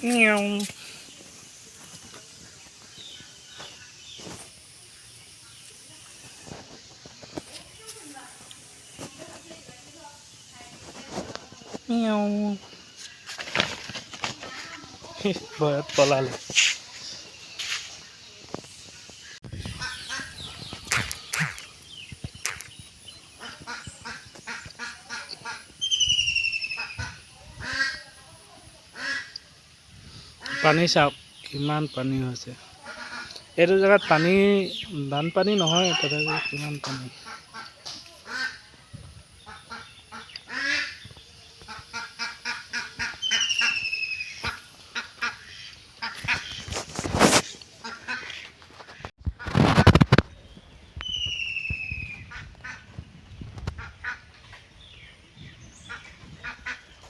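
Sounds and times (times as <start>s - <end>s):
birds giving harsh calls: 0.0s - 28.2s, 30.2s - 57.0s
ducks quacking: 19.1s - 21.8s, 23.3s - 25.8s, 26.6s - 28.2s, 28.9s - 29.4s, 30.4s - 31.1s, 32.8s - 34.7s, 35.6s - 38.7s, 39.4s - 49.8s, 52.2s - 53.0s, 53.7s - 54.6s, 55.8s - 57.0s.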